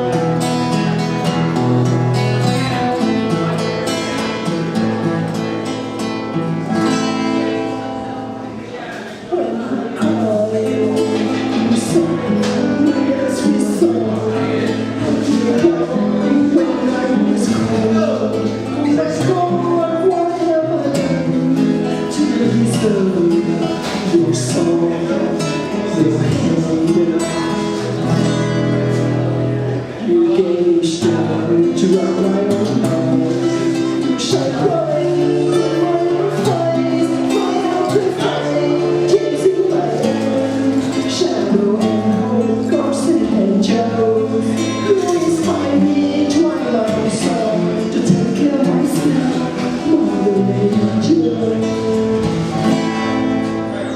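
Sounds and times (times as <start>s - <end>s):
slow acoustic guitar music: 0.0s - 53.9s.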